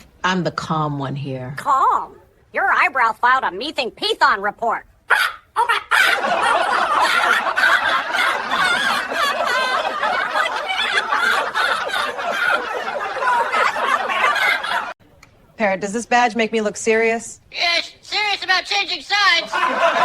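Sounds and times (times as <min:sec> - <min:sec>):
group of people laughing: 0:05.6 - 0:15.0, 0:19.4 - 0:20.0.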